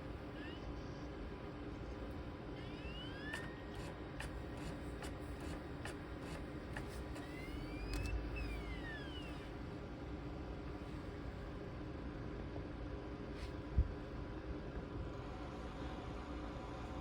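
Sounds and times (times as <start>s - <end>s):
cd drive motor whine: 0.0s - 10.5s
laptop hum: 0.0s - 12.4s
read head clicks: 2.6s - 9.4s.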